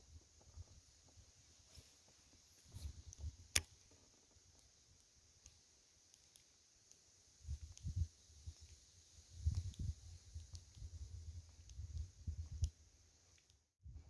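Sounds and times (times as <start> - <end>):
light ticks: 4.5 - 8.8, 9.4 - 13.7.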